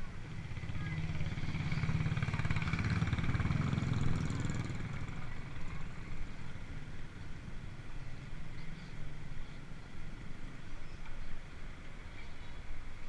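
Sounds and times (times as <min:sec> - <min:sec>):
vehicle engine passing by: 0:00.3 - 0:06.6.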